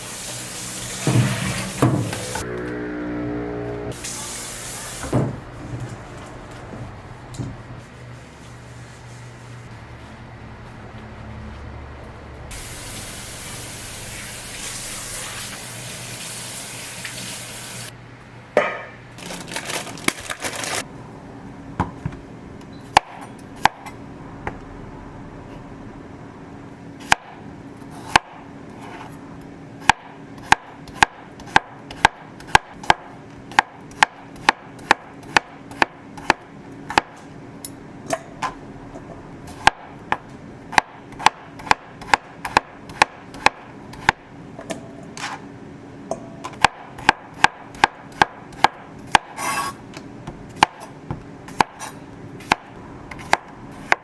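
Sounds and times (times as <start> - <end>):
water running from a tap: 0.0 - 1.9, 12.6 - 17.9
knife chopping on cutting board: 39.5 - 44.2, 46.5 - 49.7.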